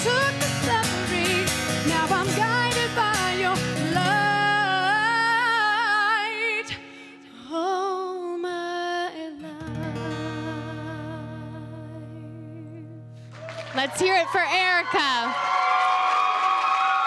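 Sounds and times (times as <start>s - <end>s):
woman singing with vibrato: 0.0s - 13.1s
guitar accompaniment: 0.0s - 15.2s.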